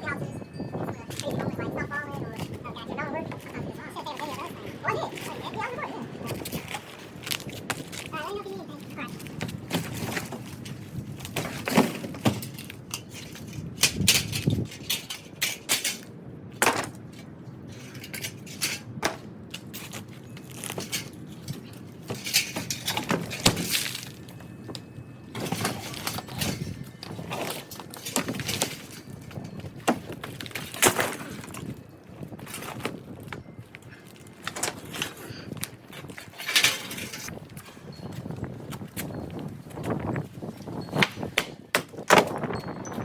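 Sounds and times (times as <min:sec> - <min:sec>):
debris knocking and clattering: 0:09.4 - 0:16.0, 0:22.0 - 0:33.4.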